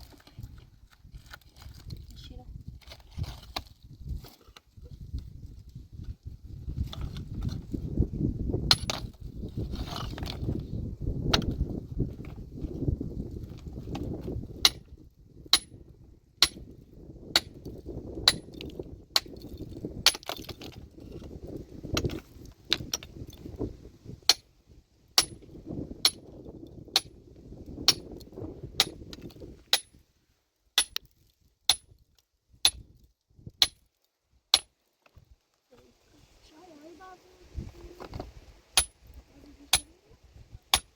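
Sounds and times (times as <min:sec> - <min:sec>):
metal tool striking stone: 0:08.7 - 0:09.1, 0:14.6 - 0:14.9, 0:15.5 - 0:15.8, 0:16.4 - 0:16.7, 0:17.3 - 0:20.7, 0:24.3 - 0:24.5, 0:25.2 - 0:27.1, 0:27.9 - 0:28.2, 0:28.8 - 0:30.0, 0:30.8 - 0:31.1, 0:31.7 - 0:32.0, 0:32.6 - 0:32.9, 0:33.6 - 0:33.9, 0:34.5 - 0:34.7, 0:38.8 - 0:39.0.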